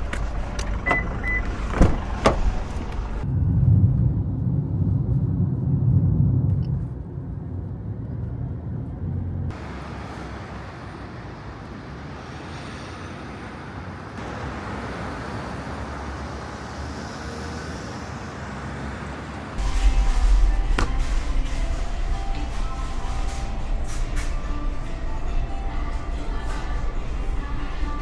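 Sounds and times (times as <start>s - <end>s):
low traffic rumble: 0.0s - 28.0s
hissy road noise: 9.2s - 28.0s.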